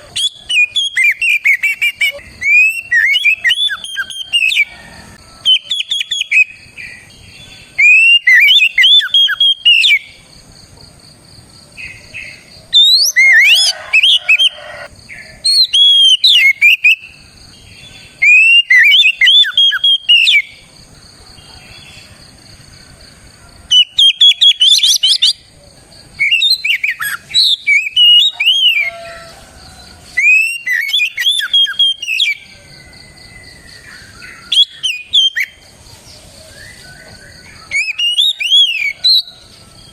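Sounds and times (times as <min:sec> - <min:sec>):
bird singing whistled phrases: 0:00.0 - 0:04.7, 0:05.5 - 0:06.6, 0:07.7 - 0:10.2, 0:12.8 - 0:14.6, 0:15.5 - 0:17.2, 0:18.2 - 0:20.6, 0:23.7 - 0:25.4, 0:26.2 - 0:29.2, 0:30.2 - 0:32.4, 0:34.4 - 0:35.6, 0:36.5 - 0:39.3.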